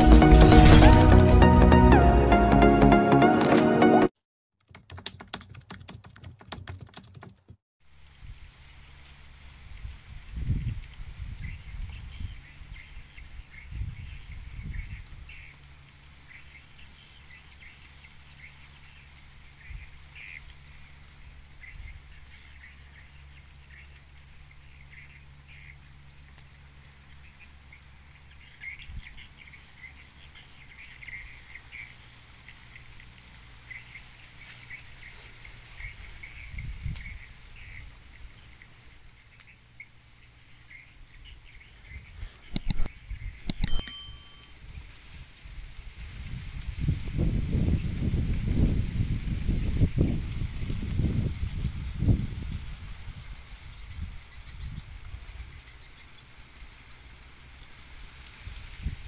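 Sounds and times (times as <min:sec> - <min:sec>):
wind rumble on microphone: 0:08.1 - 0:08.7, 0:09.3 - 0:15.6, 0:35.5 - 0:38.6, 0:41.1 - 0:43.6, 0:44.6 - 0:56.7, 0:57.9 - 0:59.0
loud clicks: 0:42.5 - 0:42.9.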